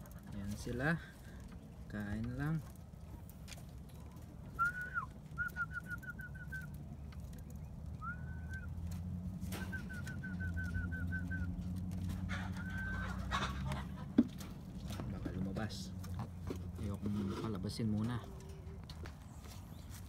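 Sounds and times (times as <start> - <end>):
bird whistling song: 4.5 - 7.0, 7.6 - 11.7.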